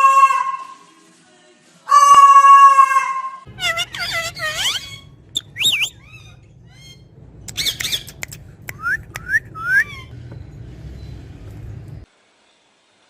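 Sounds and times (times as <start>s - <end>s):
parrot squawking: 0.0s - 0.8s, 1.9s - 8.2s, 8.8s - 10.1s
steady low hum: 3.5s - 12.1s.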